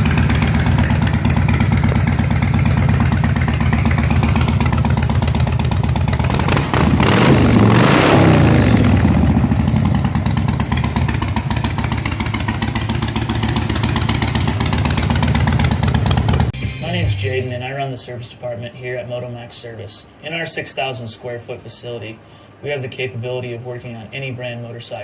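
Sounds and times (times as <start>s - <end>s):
motorcycle engine idling and revving: 0.0s - 16.6s.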